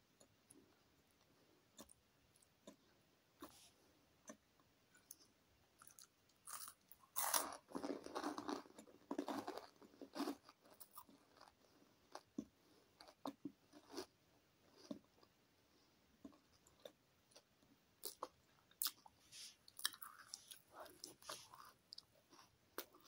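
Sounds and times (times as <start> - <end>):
crunchy chewing: 5.8 - 14.1, 16.2 - 23.0.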